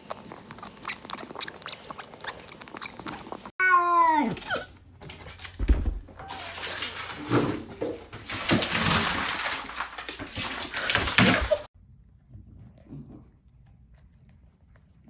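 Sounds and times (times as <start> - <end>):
cat meowing: 3.6 - 4.6.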